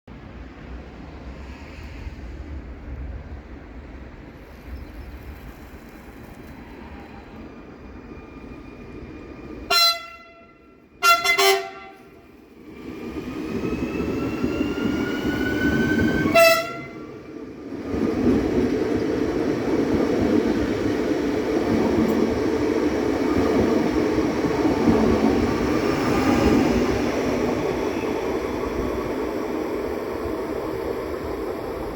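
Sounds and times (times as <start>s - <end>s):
train wheels rumbling on rails: 0.2s - 31.9s
train horn blasts: 9.7s - 12.2s, 16.2s - 17.1s.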